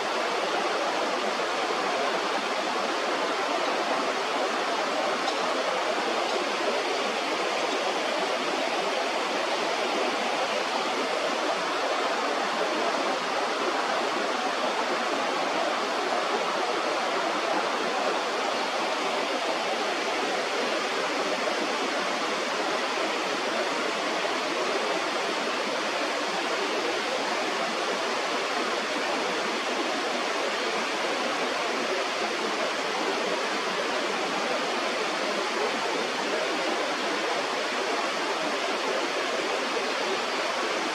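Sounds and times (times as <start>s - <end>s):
flowing river water: 0.0s - 40.9s.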